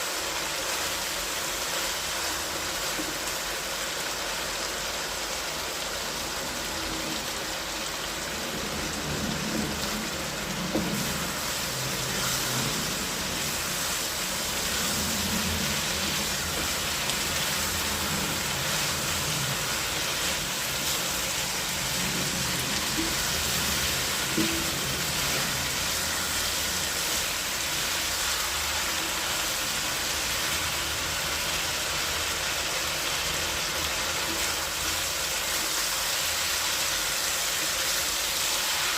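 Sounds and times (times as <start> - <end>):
meat sizzling in a pan: 0.0 - 38.9.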